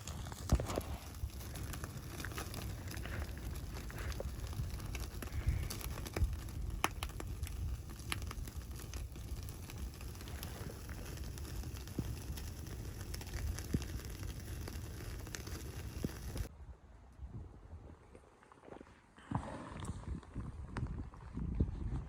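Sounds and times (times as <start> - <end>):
wood fire crackling and popping: 0.0 - 16.5.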